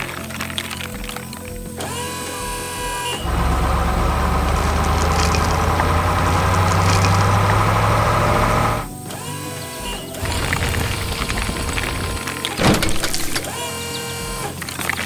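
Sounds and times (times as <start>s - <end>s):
heavy vehicle engine idling: 3.2s - 8.9s.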